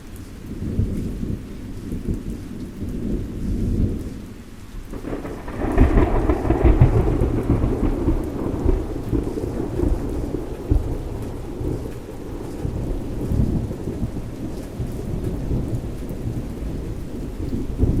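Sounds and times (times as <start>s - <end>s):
steady rain falling: 0.0s - 18.0s
low rolling thunder: 0.4s - 18.0s.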